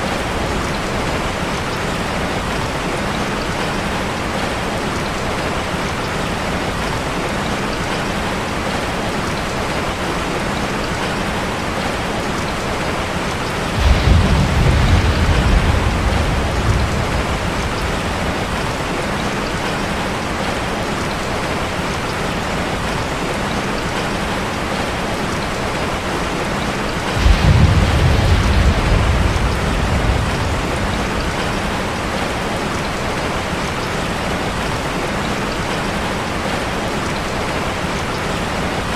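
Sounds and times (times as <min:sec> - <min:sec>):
heavy rain on a metal roof: 0:00.0 - 0:38.9
thunder rolling: 0:13.6 - 0:20.2, 0:27.0 - 0:33.3.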